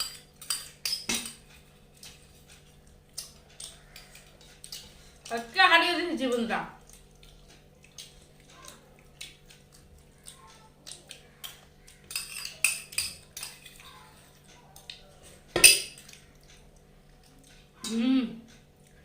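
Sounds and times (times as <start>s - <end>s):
plates and cutlery clinking: 12.1s - 13.8s, 15.5s - 16.1s.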